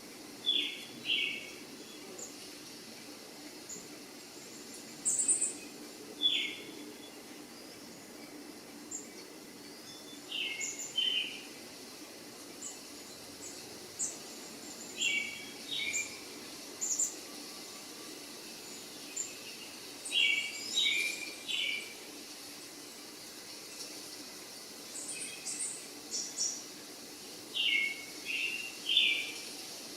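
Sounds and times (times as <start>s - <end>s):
faint background hiss: 0.0s - 29.9s
birds chirping: 27.4s - 29.4s.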